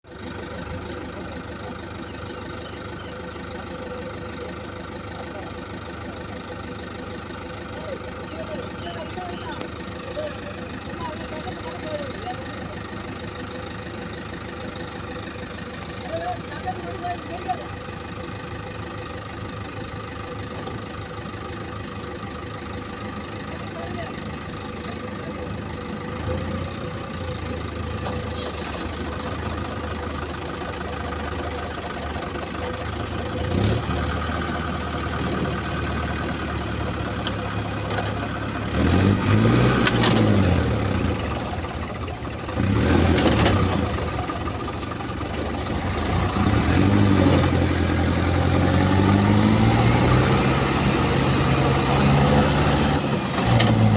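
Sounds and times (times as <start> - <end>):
diesel tractor engines revving: 0.0 - 53.9.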